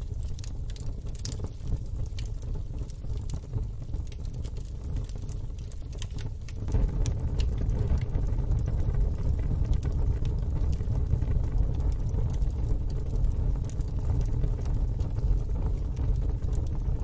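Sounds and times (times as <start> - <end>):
sharp fire pops: 0.0 - 17.0
wood fire crackling: 0.0 - 17.0
low rumble: 6.5 - 17.0.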